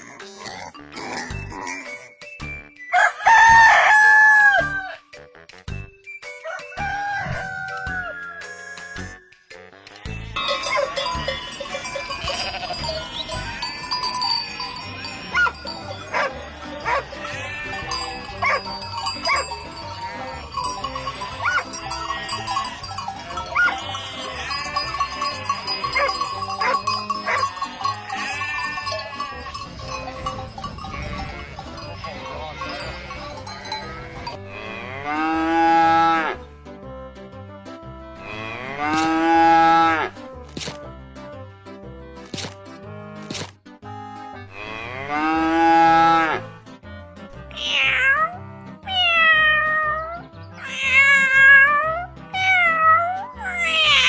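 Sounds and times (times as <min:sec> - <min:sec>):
cattle mooing: 0:09.9 - 0:14.2, 0:15.0 - 0:36.5, 0:38.2 - 0:40.2, 0:44.5 - 0:46.6
bells clanking: 0:10.2 - 0:34.4.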